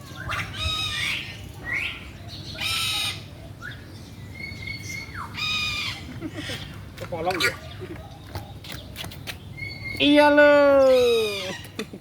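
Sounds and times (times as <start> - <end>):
shrill bird calls: 0.0 - 6.7, 9.5 - 11.7.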